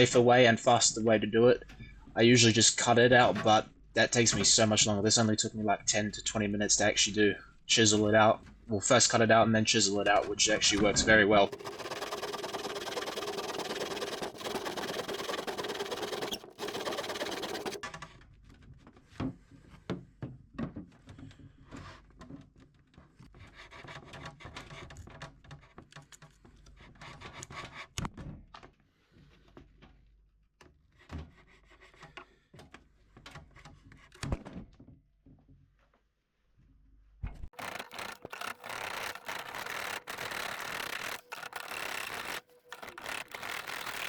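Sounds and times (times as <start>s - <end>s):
chisel scraping wood: 11.4s - 17.8s, 37.6s - 44.0s.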